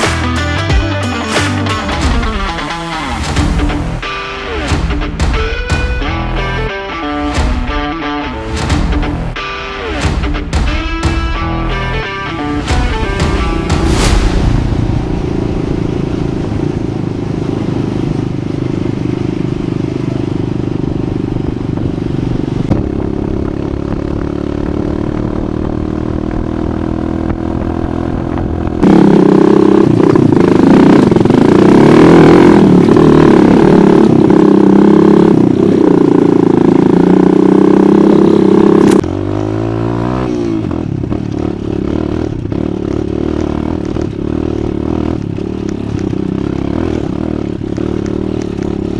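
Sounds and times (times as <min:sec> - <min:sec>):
dirt bike engine revving: 0:28.2 - 0:48.9.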